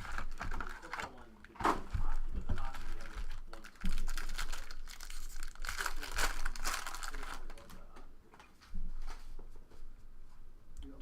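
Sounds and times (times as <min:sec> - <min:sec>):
plastic wrappers crinkling and tearing: 0:00.0 - 0:07.9
cards rustling: 0:02.6 - 0:07.9.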